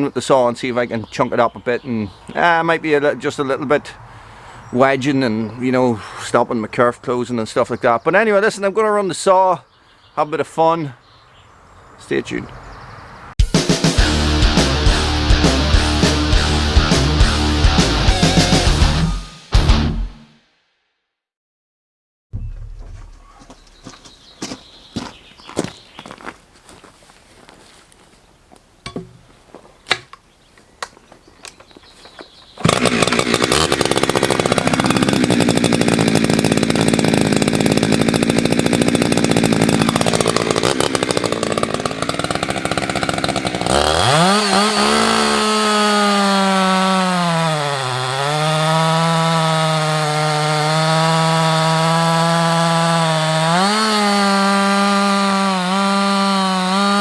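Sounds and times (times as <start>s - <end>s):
chainsaw cutting wood: 13.8s - 19.3s, 22.4s - 25.2s, 32.3s - 57.0s
faint knocks: 22.4s - 24.6s.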